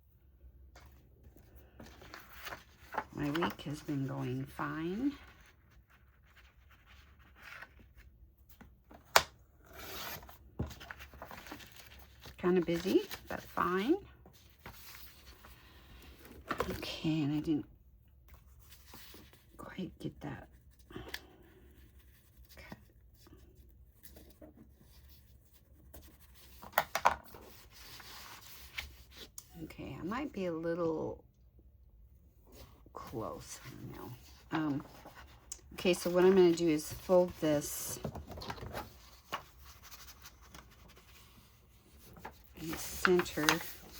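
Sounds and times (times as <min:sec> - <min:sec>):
paper rustling and scratching: 0:01.6 - 0:08.1, 0:09.0 - 0:16.9, 0:18.3 - 0:19.5, 0:21.6 - 0:29.4, 0:32.6 - 0:43.9.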